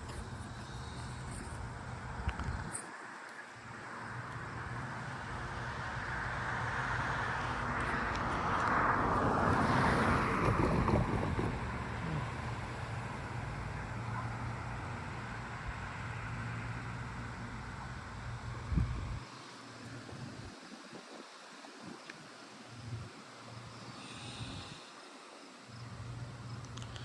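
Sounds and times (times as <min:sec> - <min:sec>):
steady low hum: 0:00.0 - 0:08.2, 0:08.8 - 0:27.0
vehicle passing by: 0:04.0 - 0:19.3.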